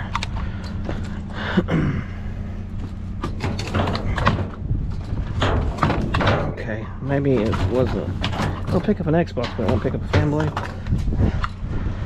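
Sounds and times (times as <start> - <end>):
steady low hum: 0.0 - 12.0
debris knocking in a dumpster: 3.3 - 10.9.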